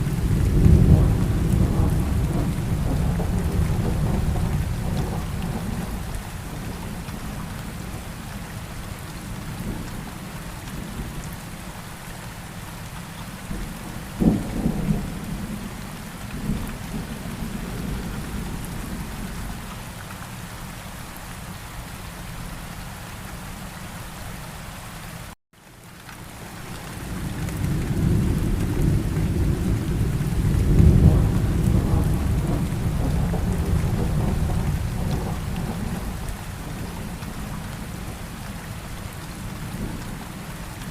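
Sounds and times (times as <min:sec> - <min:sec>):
low rolling thunder rumble: 0:00.0 - 0:08.2, 0:13.4 - 0:19.7, 0:26.9 - 0:40.9
steady rain falling: 0:00.0 - 0:40.9
thunder crack: 0:00.3 - 0:05.9, 0:27.5 - 0:36.2.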